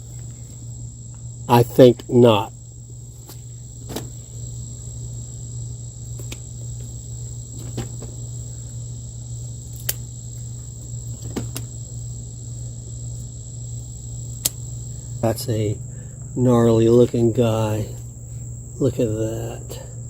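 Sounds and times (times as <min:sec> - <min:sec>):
crickets trilling: 0:00.0 - 0:20.0
steady low hum: 0:00.0 - 0:20.0
sharp clicks: 0:14.4 - 0:14.6.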